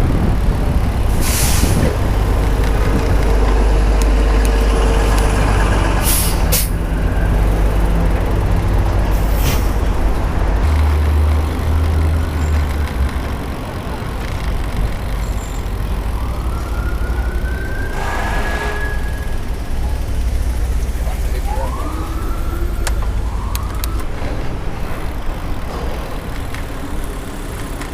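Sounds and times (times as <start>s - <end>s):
wind rumbling on microphone: 0.0s - 17.0s
heavy trucks and buses running: 0.0s - 27.9s
air brakes hissing: 1.1s - 2.0s, 6.0s - 7.1s, 9.1s - 9.8s, 17.8s - 19.5s
siren rising: 15.6s - 19.8s, 20.5s - 25.6s.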